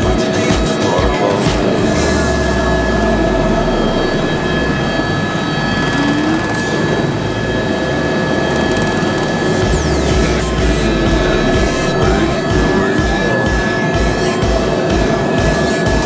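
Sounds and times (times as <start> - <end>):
helicopter engine and rotors: 0.0 - 16.0
whining tones: 0.0 - 16.0.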